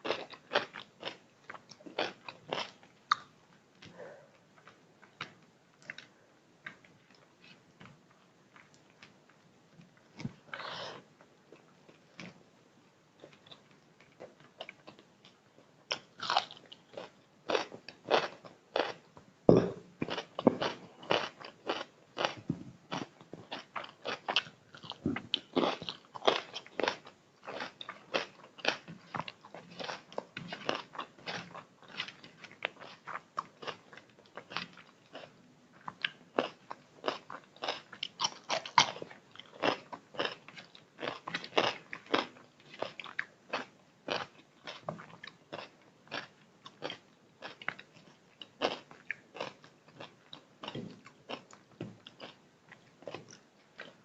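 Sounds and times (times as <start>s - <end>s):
person chewing and biting: 15.9s - 35.3s, 35.9s - 53.2s.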